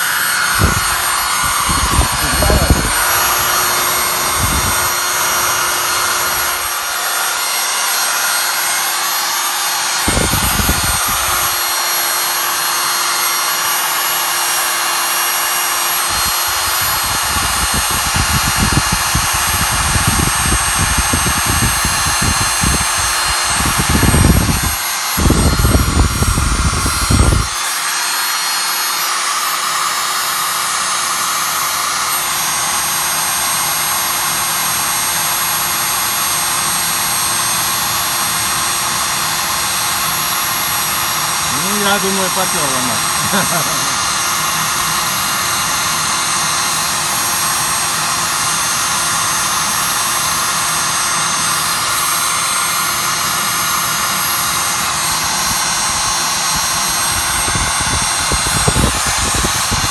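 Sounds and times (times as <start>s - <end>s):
electric blower hissing air: 0.0s - 59.9s
low rumbling gusts: 0.5s - 7.0s.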